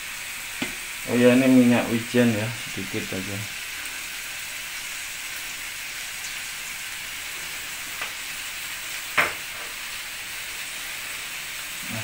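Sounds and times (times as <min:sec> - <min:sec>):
food sizzling in a wok: 0:00.0 - 0:12.0
sharp knock: 0:09.2 - 0:09.4.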